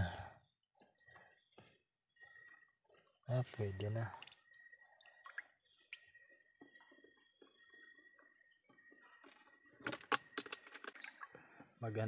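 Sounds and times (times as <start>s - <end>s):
water drips in shallow creek: 2.9s - 7.6s, 9.8s - 11.9s.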